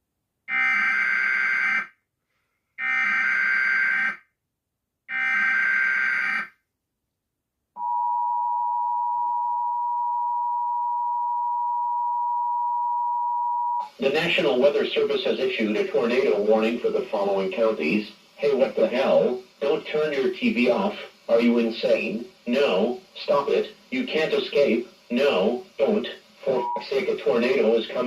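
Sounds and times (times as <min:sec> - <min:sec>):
two-tone attention signal: 0:07.8 - 0:13.9, 0:26.5 - 0:27.0
harsh digital data tones: 0:20.9 - 0:28.0.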